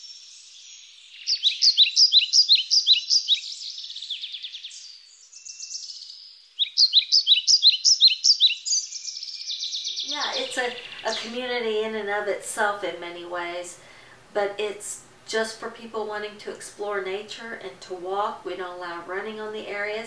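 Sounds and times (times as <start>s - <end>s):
soft bird twittering: 0.0s - 11.4s
songbird singing: 0.0s - 13.7s.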